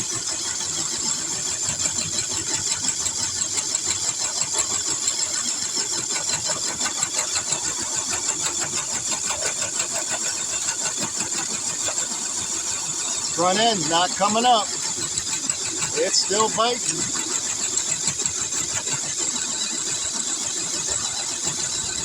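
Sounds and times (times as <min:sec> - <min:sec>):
fast rattling chatter: 0:00.0 - 0:22.0
electric motor and gear whine: 0:13.2 - 0:22.0.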